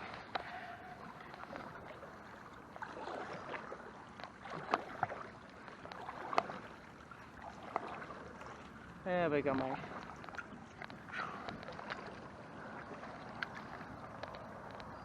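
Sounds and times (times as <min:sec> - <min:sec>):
paddle splashing water: 0:00.0 - 0:15.0.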